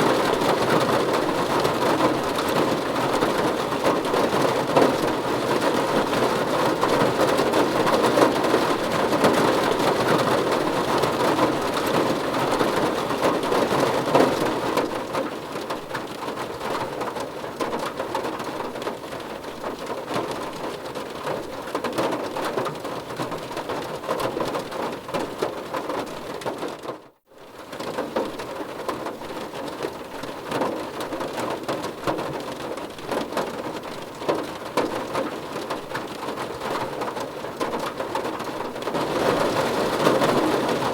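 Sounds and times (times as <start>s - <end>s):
rain on car roof: 0.0s - 40.9s.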